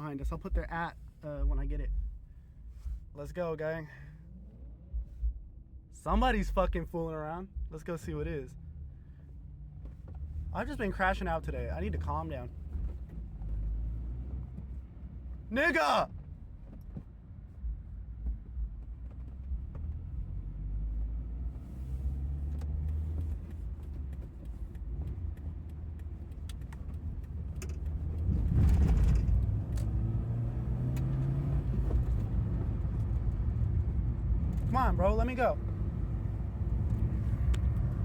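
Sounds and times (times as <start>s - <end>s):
car engine and road noise: 0.0s - 38.0s.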